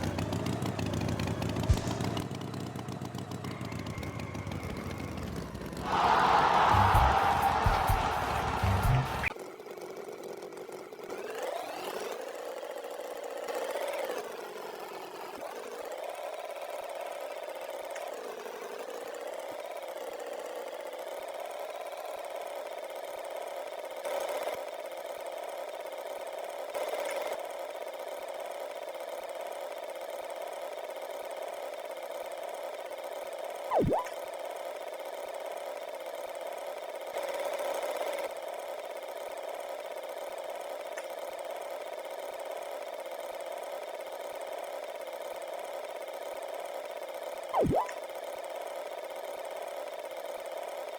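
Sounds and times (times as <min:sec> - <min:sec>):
cartoon tractor engine: 0:00.0 - 0:50.9
sharp swooping tone: 0:33.7 - 0:34.1, 0:47.6 - 0:48.0.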